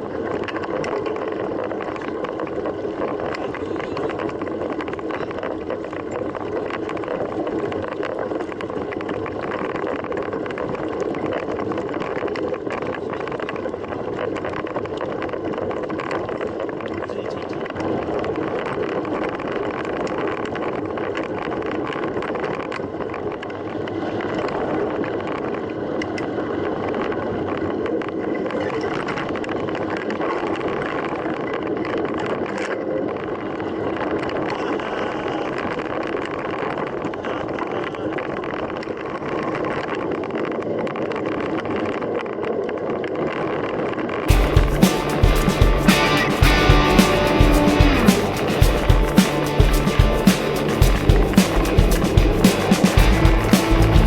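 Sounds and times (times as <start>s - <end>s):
tyre hum: 44.3s - 54.0s.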